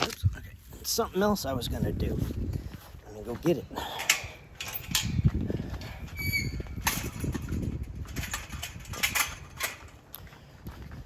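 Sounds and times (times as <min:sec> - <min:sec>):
low rumble on microphone: 0:03.8 - 0:11.0
short high squeak: 0:06.2 - 0:06.7.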